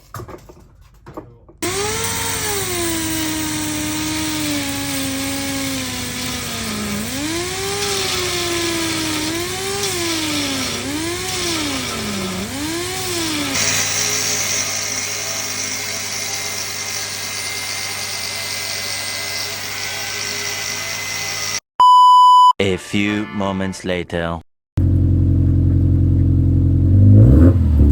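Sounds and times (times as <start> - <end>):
car engine revving and idling: 24.8 - 27.9.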